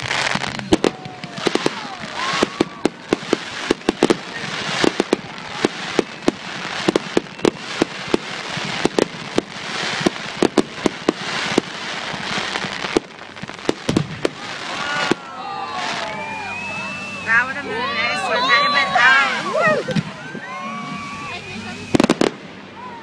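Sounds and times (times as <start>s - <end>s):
fireworks bangs and pops: 0.0s - 17.5s, 18.1s - 22.9s
crackling hiss of fireworks: 0.0s - 23.0s.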